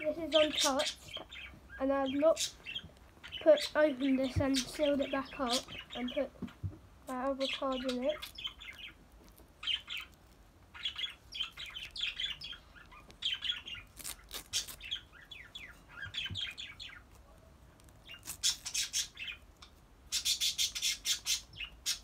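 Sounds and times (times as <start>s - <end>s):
birds chirping: 0.0s - 17.2s, 18.0s - 22.0s
card packet crackling: 13.2s - 15.0s.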